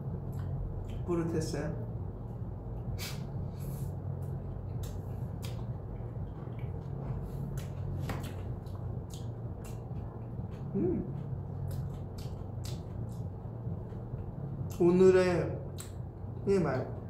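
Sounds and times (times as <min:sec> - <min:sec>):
low hum: 0:00.0 - 0:17.0
man chewing food: 0:00.1 - 0:01.1, 0:02.2 - 0:14.9
mouth clicks and smacks: 0:04.3 - 0:14.0, 0:15.7 - 0:16.2.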